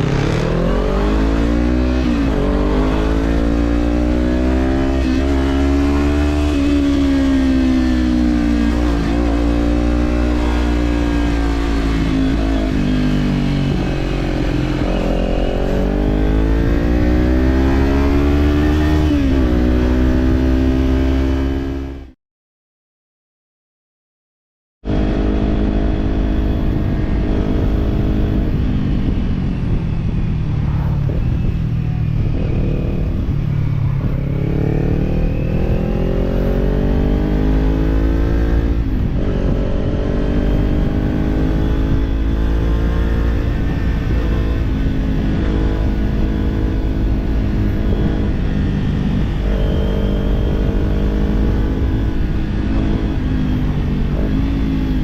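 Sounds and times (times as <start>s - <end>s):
motorcycle engine accelerating: 0.0s - 22.2s, 24.8s - 55.0s.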